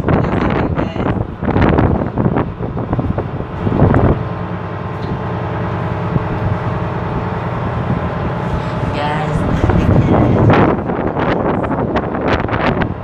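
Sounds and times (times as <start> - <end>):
ship engine humming: 0.0 - 13.0.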